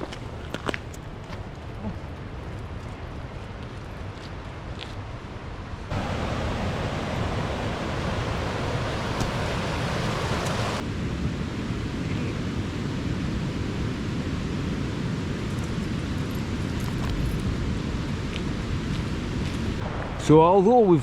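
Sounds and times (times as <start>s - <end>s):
rushing river water: 5.9s - 11.0s.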